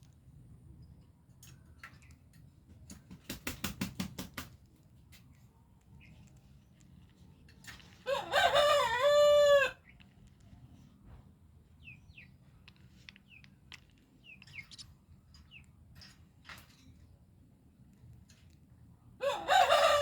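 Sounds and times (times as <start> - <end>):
rooster crowing: 8.0 - 9.8, 19.2 - 20.0
faint high chirps: 11.8 - 15.8.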